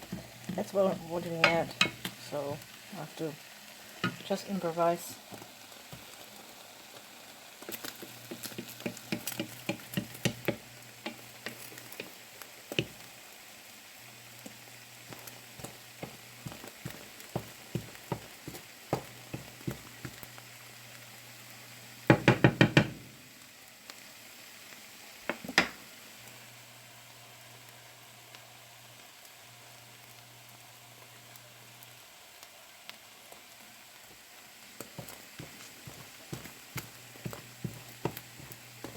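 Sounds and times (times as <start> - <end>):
cooking utensil knocking: 8.3 - 11.2, 22.1 - 23.0.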